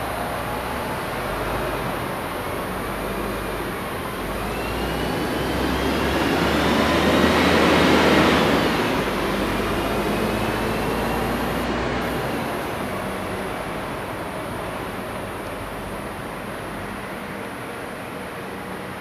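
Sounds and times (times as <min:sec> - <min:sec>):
vehicle passing by: 0:00.0 - 0:15.0
faint whine dropping in pitch: 0:08.3 - 0:16.8.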